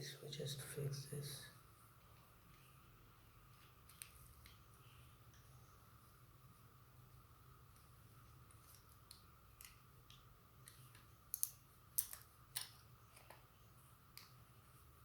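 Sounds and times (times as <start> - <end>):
faint steady hum: 0.0 - 15.0
small hard parts clicking: 8.5 - 13.5.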